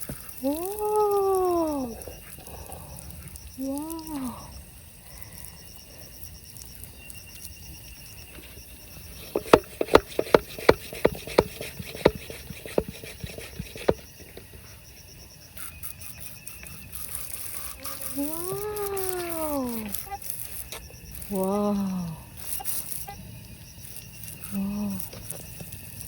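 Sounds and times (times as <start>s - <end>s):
insect chirping: 0.0s - 26.0s
sharp knocks of hard objects: 9.3s - 14.5s.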